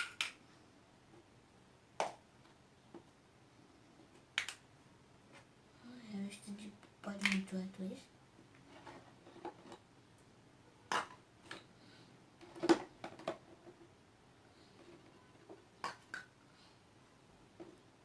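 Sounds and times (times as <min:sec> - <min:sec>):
faint handling noise: 0:08.4 - 0:10.3.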